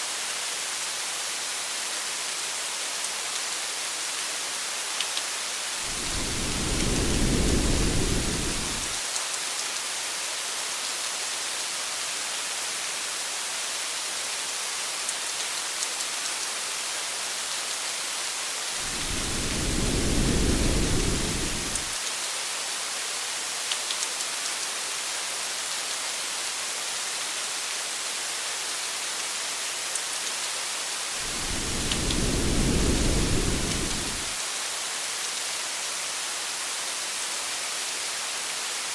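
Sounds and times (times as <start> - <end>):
steady rain hiss: 0.0 - 38.9
thunder rumbling: 5.8 - 9.0, 18.8 - 22.0, 31.2 - 34.4.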